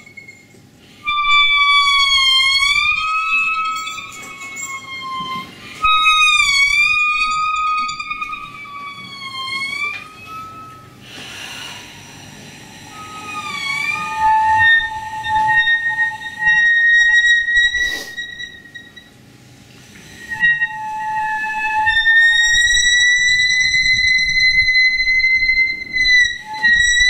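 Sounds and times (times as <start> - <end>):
processed horn-like wind instrument tones: 0.0 - 11.0, 12.9 - 19.1, 20.2 - 27.0.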